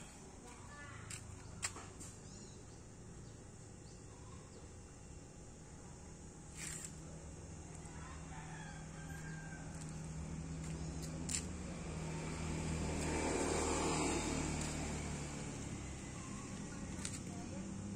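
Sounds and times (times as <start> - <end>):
distant rooster crowing: 7.7 - 10.4
vehicle passing: 9.2 - 17.9.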